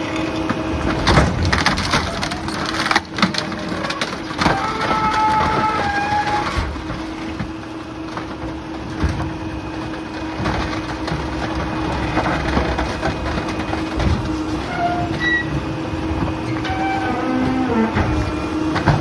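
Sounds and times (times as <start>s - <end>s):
debris cracking and crunching: 0.0s - 19.0s
hydraulic hum: 0.0s - 19.0s
short squeaks: 14.6s - 15.6s, 16.5s - 18.4s.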